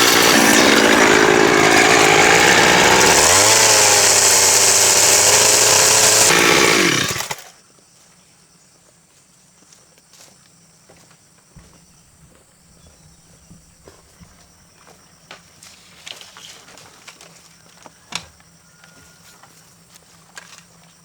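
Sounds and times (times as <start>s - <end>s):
chainsaw cutting timber: 0.0s - 7.5s.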